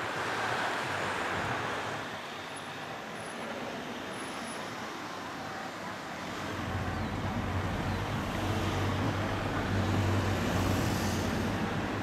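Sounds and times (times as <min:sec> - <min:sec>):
steam train rumbling past: 0:06.6 - 0:12.0
steam hiss: 0:10.4 - 0:11.9.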